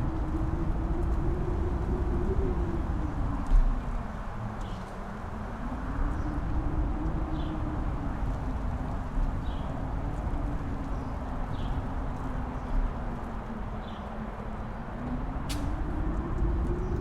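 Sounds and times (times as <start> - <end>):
wind gusts thudding on microphone: 0.0 - 17.0
wind howling: 0.0 - 17.0.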